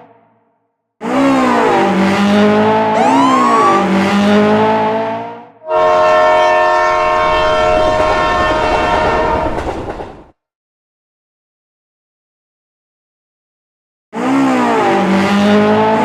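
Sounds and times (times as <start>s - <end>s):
car engine revving: 1.0s - 5.6s, 14.2s - 16.0s.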